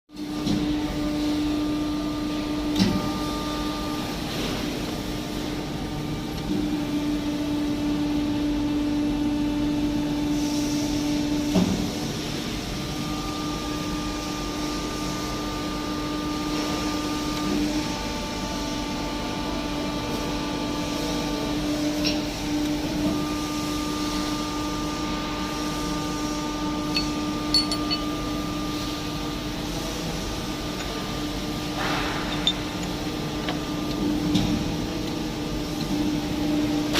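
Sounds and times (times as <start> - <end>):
high machine whine: 23.0 - 36.9
machine humming: 24.6 - 36.9.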